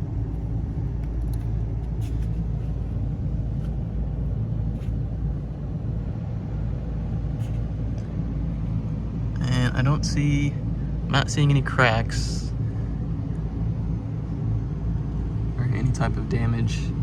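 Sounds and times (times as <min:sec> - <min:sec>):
low mechanical rumble and hum: 0:00.0 - 0:17.0.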